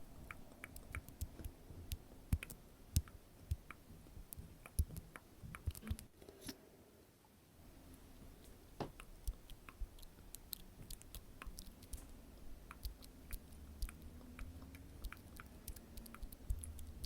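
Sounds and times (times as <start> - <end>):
wet mouth clicks and smacks: 2.4 - 6.1, 8.9 - 17.0.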